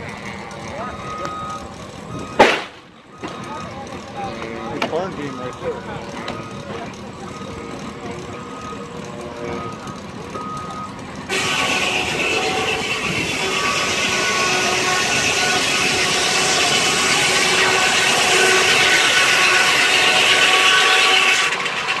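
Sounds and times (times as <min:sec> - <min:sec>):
circular saw whine: 0:00.0 - 0:22.0
saw cutting log: 0:11.3 - 0:22.0.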